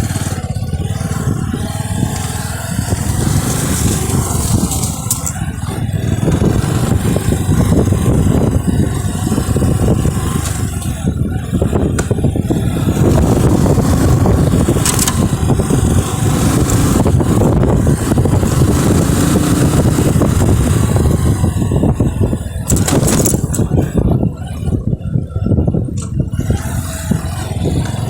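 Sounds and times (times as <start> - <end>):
motorcycle engine rumbling: 0.0 - 28.0
short knocks or rattles: 22.7 - 23.7.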